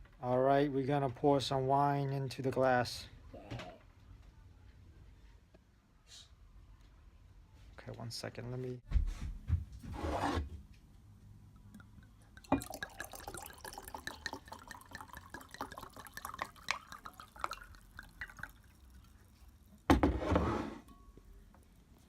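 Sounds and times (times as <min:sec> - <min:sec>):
wine pouring into a glass: 0:11.6 - 0:19.8.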